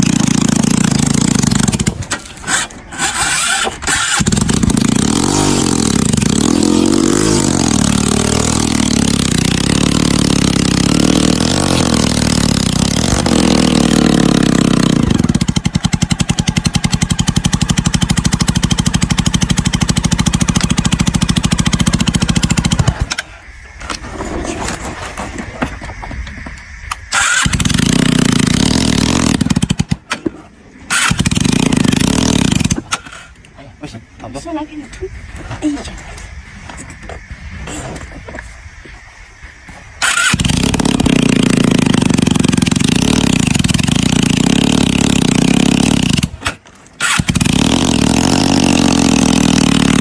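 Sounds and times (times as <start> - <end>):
motorcycle engine revving: 0.0 - 23.3, 27.0 - 30.1, 30.9 - 33.3, 40.0 - 50.0.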